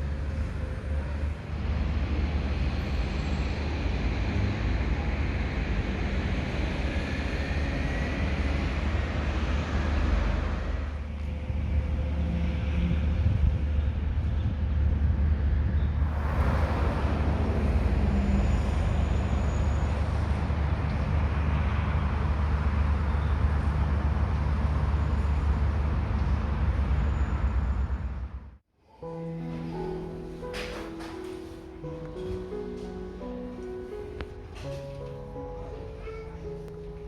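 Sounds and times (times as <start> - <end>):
vehicle road noise rumble: 0.0 - 28.6, 29.5 - 37.0.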